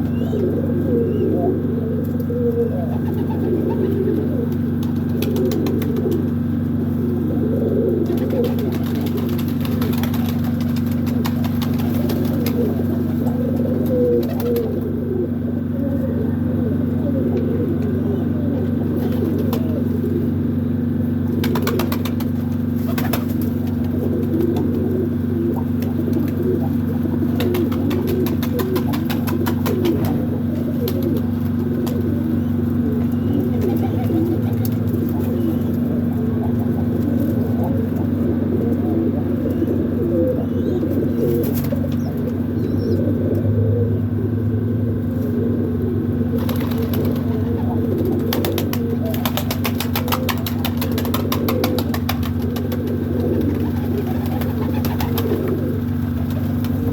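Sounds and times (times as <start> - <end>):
low hum: 0.0 - 56.9
pigeons cooing: 0.0 - 56.9.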